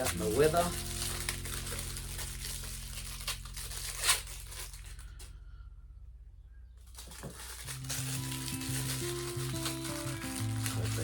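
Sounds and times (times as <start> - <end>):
rubber parts rustling and crinkling: 0.0 - 5.4, 6.8 - 11.0
low steady hum: 0.0 - 10.9.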